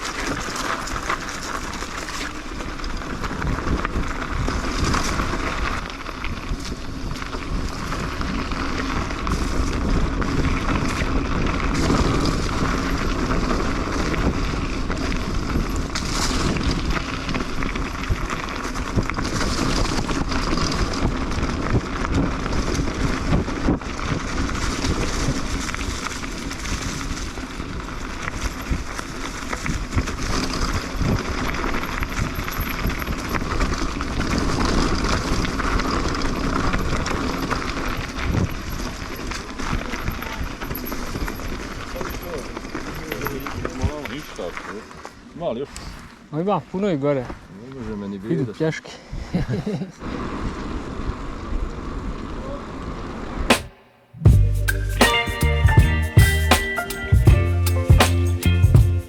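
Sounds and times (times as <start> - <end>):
bike tyre rumble: 0.0 - 48.0, 49.2 - 59.0
wind buffeting microphone: 1.7 - 42.4.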